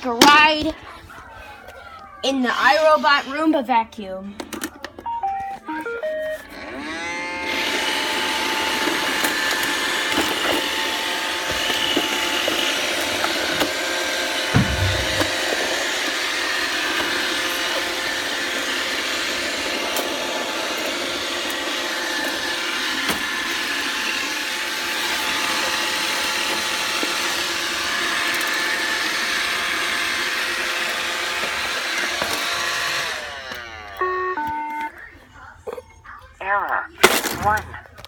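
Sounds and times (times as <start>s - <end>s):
robot vacuum whirring: 6.0s - 34.8s.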